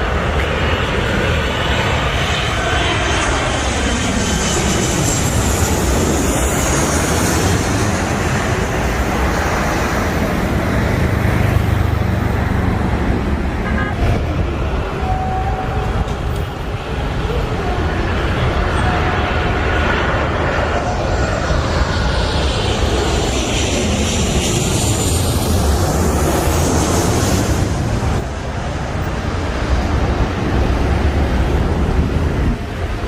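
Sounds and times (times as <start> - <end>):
jet engines whining and rumbling: 0.0 - 33.0.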